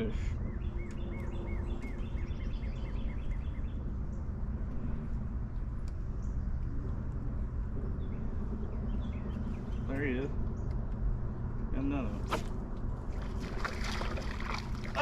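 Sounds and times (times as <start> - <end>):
bird chirping: 0.0 - 4.4, 6.0 - 11.4
outdoor background rumble: 0.0 - 15.0.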